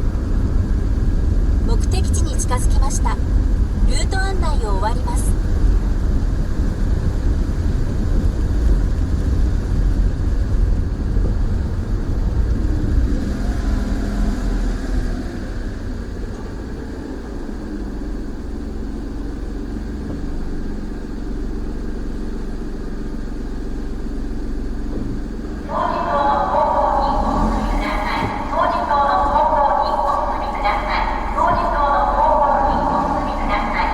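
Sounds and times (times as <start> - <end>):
car engine and road noise: 0.0 - 33.9.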